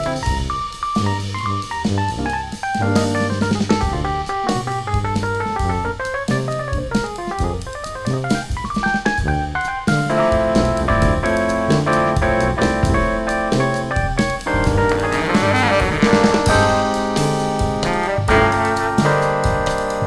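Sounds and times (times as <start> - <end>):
trumpets: 0.0 - 5.0, 13.1 - 20.0
drum kit with cymbals: 0.0 - 20.0
keyboards: 0.0 - 20.0
tuba: 0.0 - 20.0
baritone saxophone: 14.6 - 17.0, 17.8 - 19.8.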